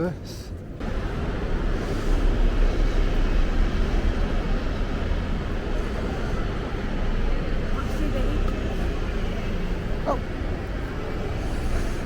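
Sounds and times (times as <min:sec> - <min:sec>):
bus engine low rumble: 0:00.2 - 0:12.0.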